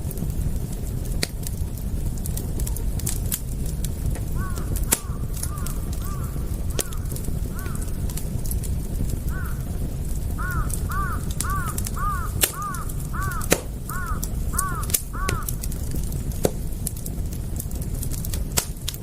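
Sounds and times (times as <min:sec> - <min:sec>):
campfire crackling and popping: 0:00.0 - 0:19.0
bird calling: 0:04.4 - 0:07.9, 0:10.4 - 0:15.5.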